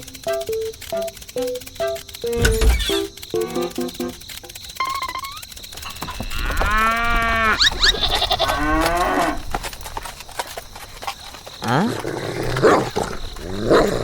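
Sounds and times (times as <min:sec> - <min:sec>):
farm animal calling: 0:04.8 - 0:09.4.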